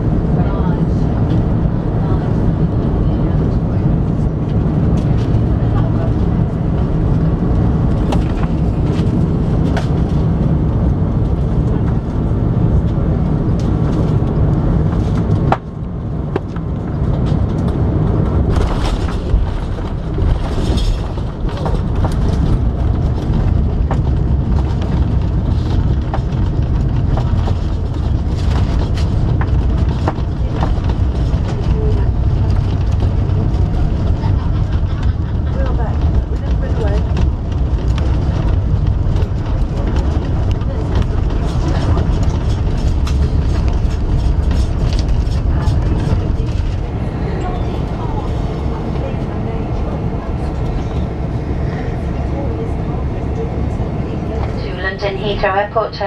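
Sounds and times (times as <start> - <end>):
airplane cabin low rumble: 0.0 - 56.0.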